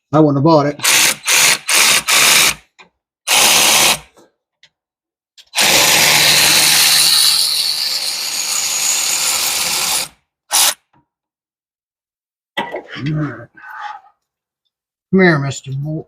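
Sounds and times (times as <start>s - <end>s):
power drill spinning: 0.8s - 2.6s, 3.3s - 4.1s, 5.5s - 10.8s.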